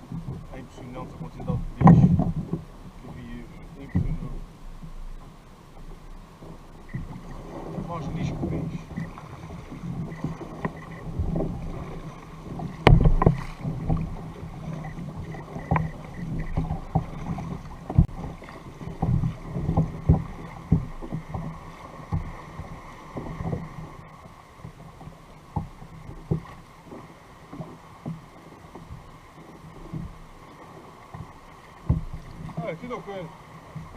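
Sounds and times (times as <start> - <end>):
water sounds: 0.0 - 33.9
knocks against kayak hull: 1.4 - 5.2, 5.8 - 23.7, 25.5 - 29.1, 31.1 - 32.7.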